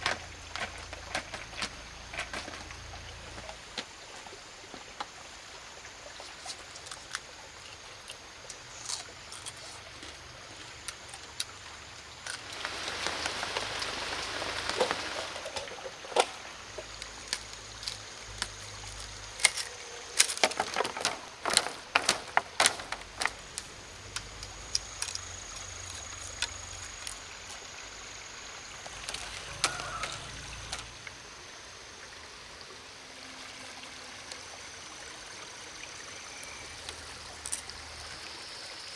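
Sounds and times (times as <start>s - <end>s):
rush of water: 0.0s - 24.7s, 28.5s - 38.9s.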